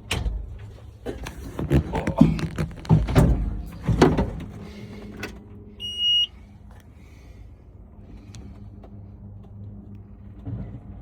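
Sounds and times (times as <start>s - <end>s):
clunks: 0.0s - 5.6s
low steady hum: 0.4s - 11.0s
electronic beep: 5.8s - 6.3s.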